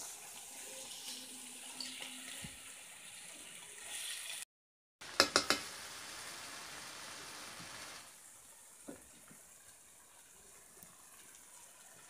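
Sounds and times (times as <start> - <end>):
fish sizzling in a wok: 0.0 - 12.0
spatula striking a pan: 5.1 - 5.7.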